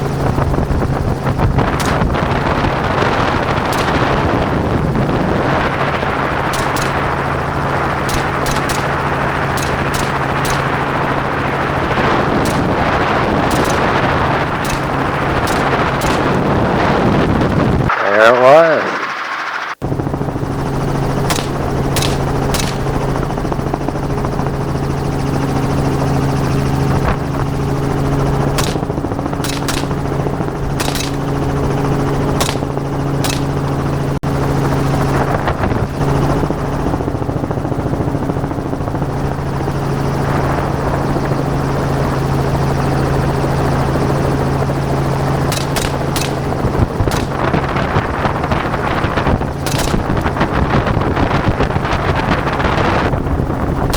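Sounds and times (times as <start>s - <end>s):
helicopter engine and rotor drone: 0.0s - 53.9s
rifle shots: 1.6s - 4.7s, 5.4s - 17.0s, 21.2s - 23.2s, 28.6s - 31.6s, 32.3s - 33.9s, 45.5s - 48.1s, 49.6s - 50.6s.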